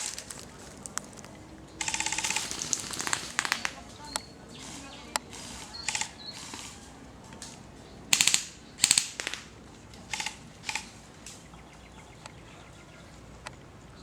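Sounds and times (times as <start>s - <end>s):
airsoft guns firing bursts: 1.8s - 3.9s, 8.1s - 9.5s.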